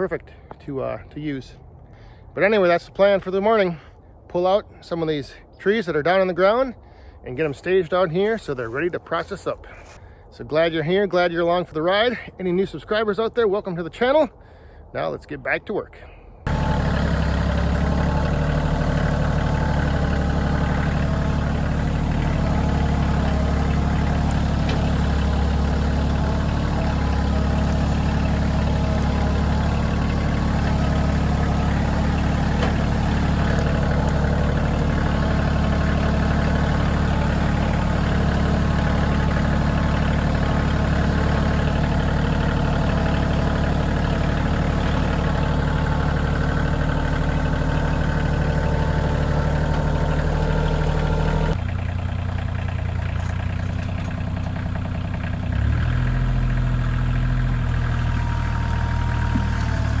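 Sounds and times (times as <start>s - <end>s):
tractor diesel engine running: 16.4s - 60.0s.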